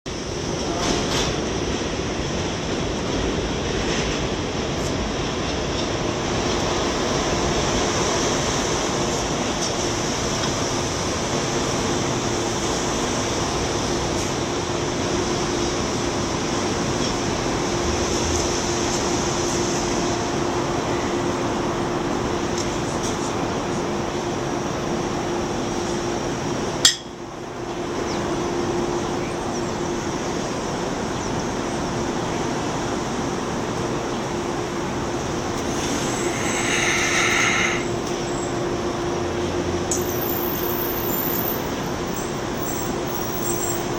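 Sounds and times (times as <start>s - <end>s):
subway train rumble and hiss: 0.0s - 43.9s
steady hum: 5.4s - 39.9s.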